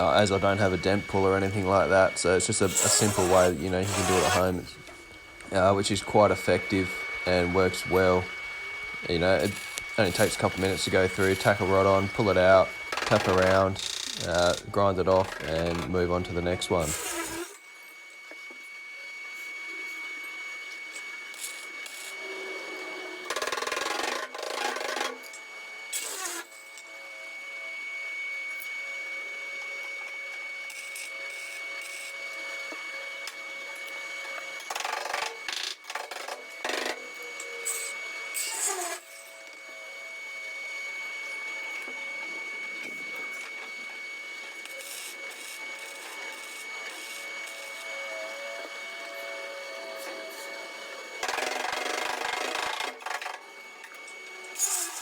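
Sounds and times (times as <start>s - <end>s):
steady high whine: 0.0s - 23.2s
tool on metal bursts: 2.6s - 4.7s, 16.8s - 17.6s.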